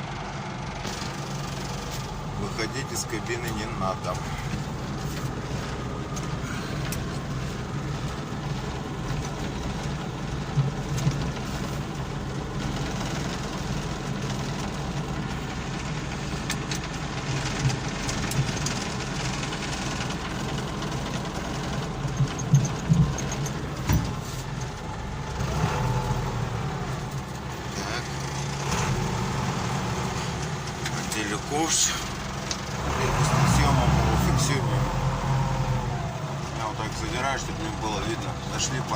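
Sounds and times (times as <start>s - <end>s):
diesel engine running: 0.0s - 38.9s
metal knocks: 22.1s - 24.2s.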